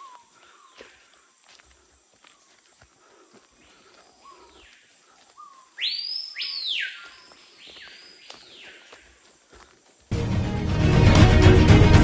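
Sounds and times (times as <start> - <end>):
footsteps on dry leaves: 0.0 - 10.2
bird harsh calls: 3.6 - 9.2.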